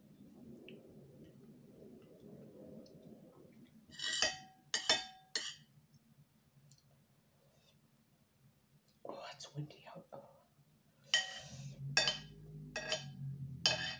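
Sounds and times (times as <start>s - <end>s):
tableware clinking: 4.0s - 5.7s, 11.1s - 13.9s.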